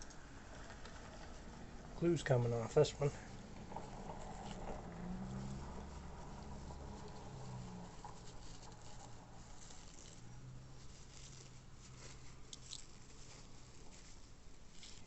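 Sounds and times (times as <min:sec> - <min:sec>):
packaging rustling: 0:03.1 - 0:15.0.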